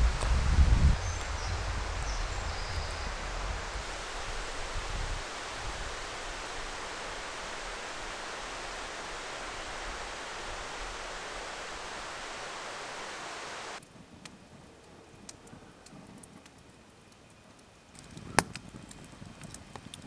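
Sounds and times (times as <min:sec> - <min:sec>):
steady rushing noise: 0:00.0 - 0:13.8.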